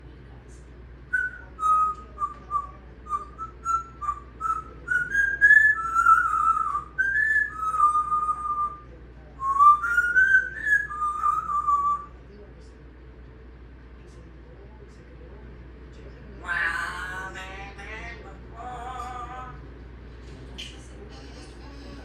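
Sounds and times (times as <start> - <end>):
parrot whistling a tune: 1.1 - 8.8, 9.4 - 12.1.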